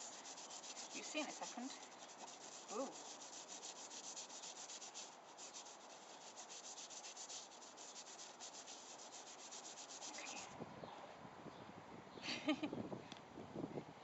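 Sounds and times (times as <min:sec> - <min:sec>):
fast scrubbing on plastic: 0:00.0 - 0:10.5.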